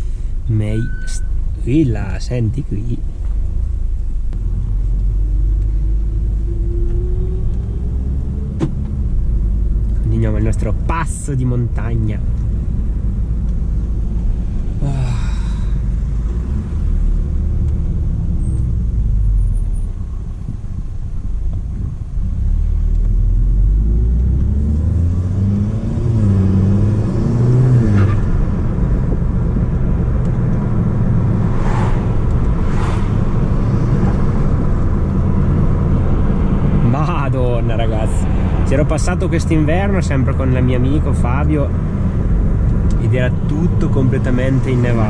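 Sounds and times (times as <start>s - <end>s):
car engine revving: 3.0s - 20.4s, 21.1s - 45.0s.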